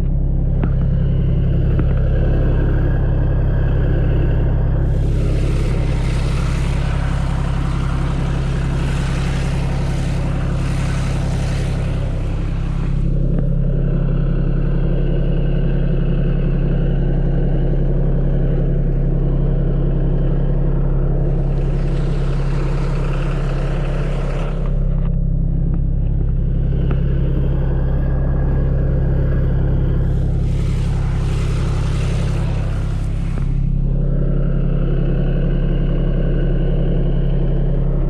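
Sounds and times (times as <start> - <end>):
tractor engine running: 0.0 - 38.0
bright rushing noise: 4.8 - 13.7, 30.0 - 34.2.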